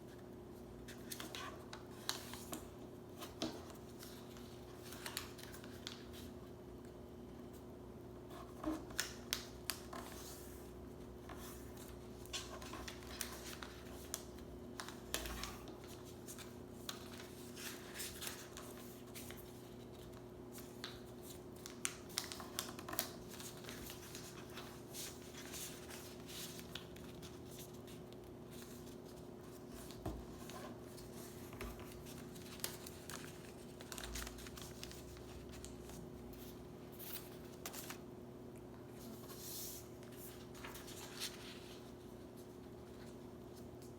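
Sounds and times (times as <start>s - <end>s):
paper being folded and creased: 3.2s - 6.3s, 11.2s - 38.0s, 39.0s - 43.7s.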